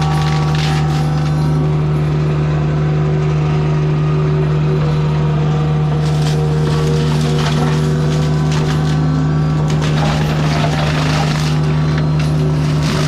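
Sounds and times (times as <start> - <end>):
grinding noise: 0.0 - 2.4, 5.9 - 13.0
mulching machine engine hum: 0.0 - 13.0.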